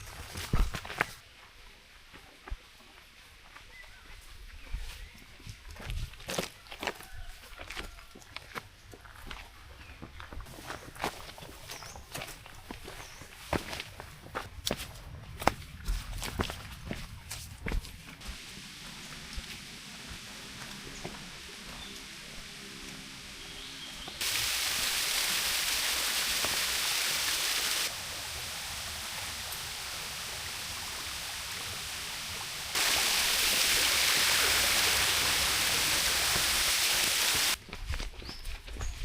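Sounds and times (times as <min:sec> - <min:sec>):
forest stream rushing: 0:18.2 - 0:37.6.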